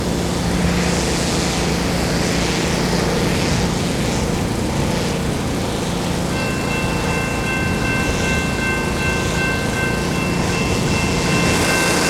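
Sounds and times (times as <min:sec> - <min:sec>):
locomotive diesel engines running: 0:00.0 - 0:12.0.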